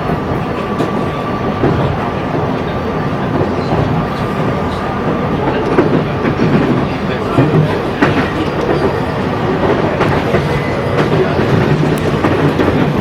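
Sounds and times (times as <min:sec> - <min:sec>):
train rolling rumble: 0:00.0 - 0:13.0.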